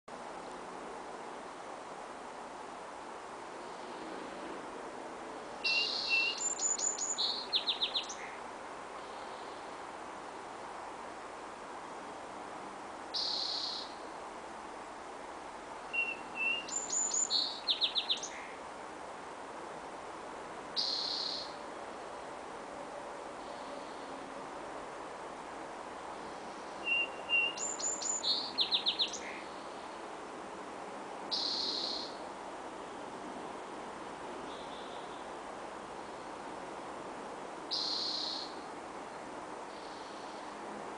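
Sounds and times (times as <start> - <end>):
steady background hiss: 0.1 - 40.9
bird singing trill: 5.6 - 8.2, 13.2 - 14.0, 15.9 - 18.4, 20.8 - 21.6, 26.8 - 29.5, 31.3 - 32.2, 37.7 - 38.6
songbird whistling: 5.6 - 8.2, 13.2 - 14.0, 15.9 - 18.3, 20.8 - 21.5, 26.8 - 29.2, 31.3 - 32.2, 37.7 - 38.5.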